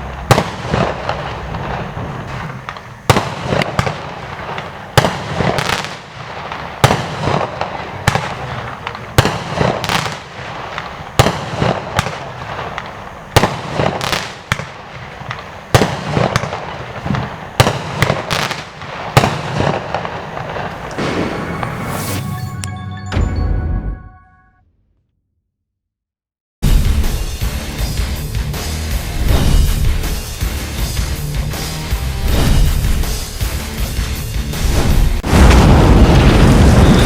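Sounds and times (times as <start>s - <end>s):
firework bangs: 0.0s - 22.6s, 26.6s - 37.0s
firework crackling: 0.0s - 22.6s, 27.1s - 37.0s.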